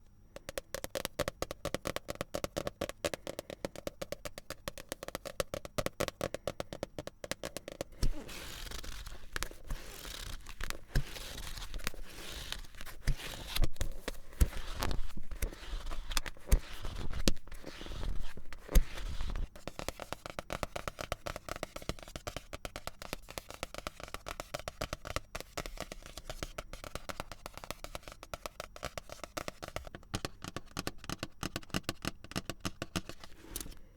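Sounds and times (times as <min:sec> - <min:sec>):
fingernails tapping on books: 0:00.3 - 0:33.8
books scraping and thudding: 0:07.9 - 0:19.5
pages flipping: 0:07.9 - 0:20.3, 0:33.0 - 0:33.9.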